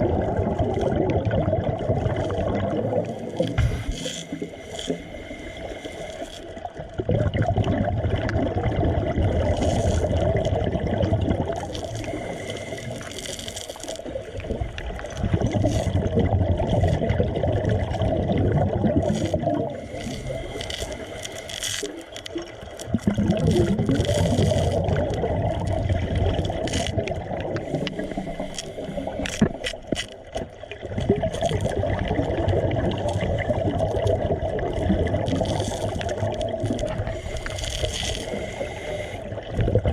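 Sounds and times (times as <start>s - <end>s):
underwater bubbling of exhaled air: 0.0s - 39.9s.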